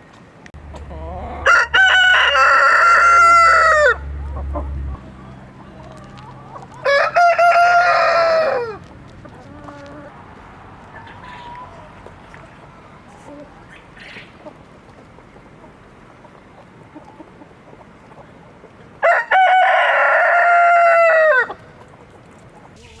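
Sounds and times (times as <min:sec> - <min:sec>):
rooster crowing: 0:01.1 - 0:04.2, 0:06.4 - 0:08.8, 0:19.0 - 0:21.6.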